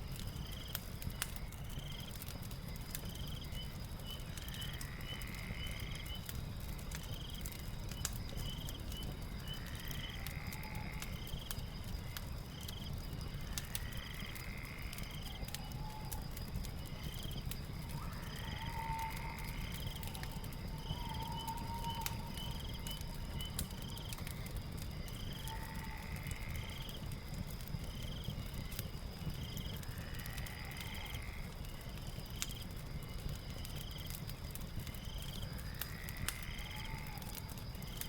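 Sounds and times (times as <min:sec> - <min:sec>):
fireplace crackling: 0:00.0 - 0:38.0.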